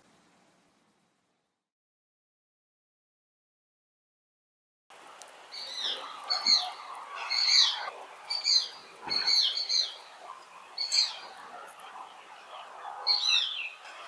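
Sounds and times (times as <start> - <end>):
bird of prey calling: 5.5 - 14.0.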